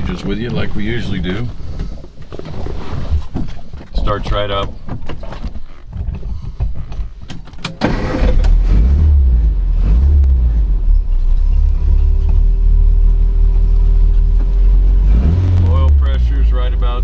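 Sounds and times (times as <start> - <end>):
car engine idling: 7.9 - 17.0.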